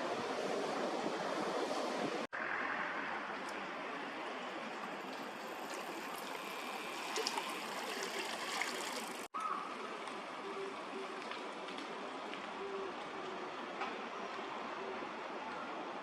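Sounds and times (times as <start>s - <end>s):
stream rushing: 3.4s - 9.3s.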